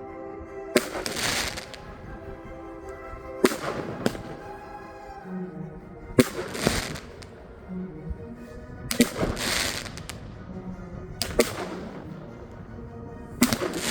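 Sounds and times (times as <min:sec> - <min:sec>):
music: 0:00.0 - 0:13.9
firework bangs with crackle: 0:00.8 - 0:01.8, 0:03.4 - 0:04.4, 0:06.2 - 0:07.2, 0:08.9 - 0:10.1, 0:11.2 - 0:12.0, 0:13.4 - 0:13.9.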